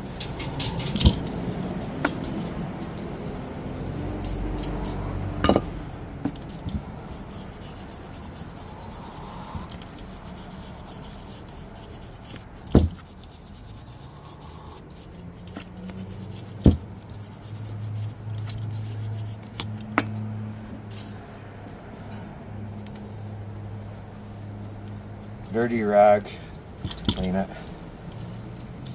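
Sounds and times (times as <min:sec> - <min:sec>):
rag rubbing metal parts: 0:00.0 - 0:22.3, 0:23.8 - 0:28.9
sharp knocks: 0:12.7 - 0:13.0.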